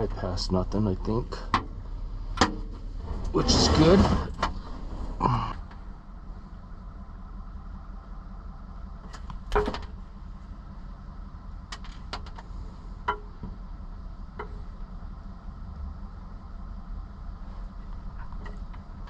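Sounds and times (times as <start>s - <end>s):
low mechanical hum: 0.0s - 19.0s
hardware clicks and knocks: 11.7s - 13.6s.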